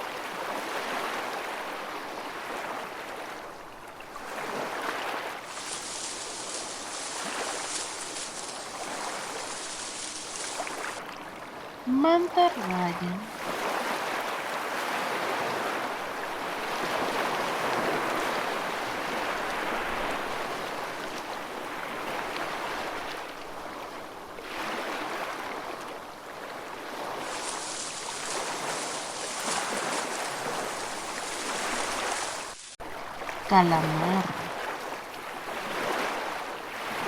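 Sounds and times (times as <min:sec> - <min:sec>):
rushing ocean water: 0:00.0 - 0:37.0
bright hiss: 0:05.5 - 0:11.0, 0:27.2 - 0:32.8.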